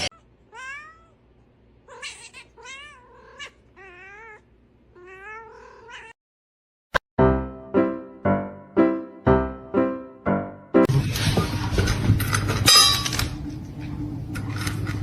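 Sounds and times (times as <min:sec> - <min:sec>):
cat meowing and yowling: 0:00.5 - 0:01.2, 0:01.9 - 0:04.4, 0:05.0 - 0:06.2
keyboard music: 0:07.2 - 0:10.9.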